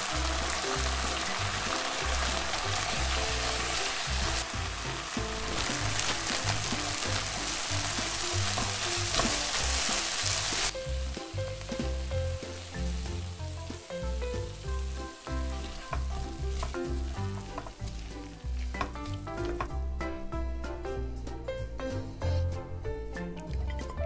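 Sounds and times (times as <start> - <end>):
food sizzling in a frying pan: 0.0 - 19.7
background music: 0.0 - 24.0
spatula tapping and scraping pan: 18.7 - 19.8.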